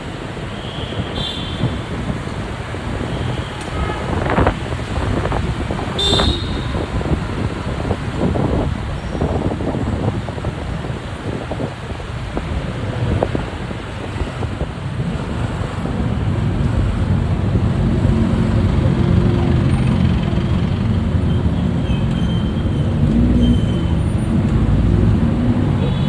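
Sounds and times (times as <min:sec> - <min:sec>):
road noise: 0:00.0 - 0:26.0.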